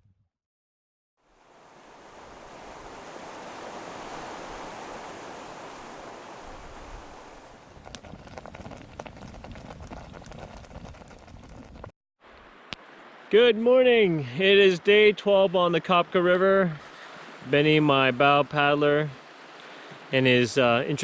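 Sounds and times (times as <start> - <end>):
campfire crackling and popping: 7.6 - 11.9.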